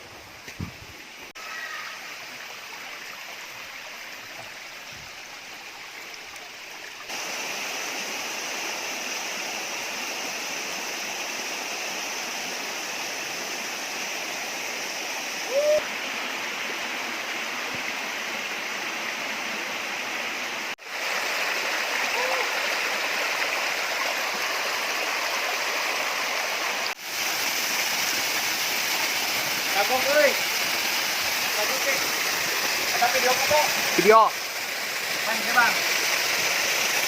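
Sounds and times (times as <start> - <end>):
waterfall rushing: 1.2 - 37.0
short whistle-like call: 15.4 - 15.9.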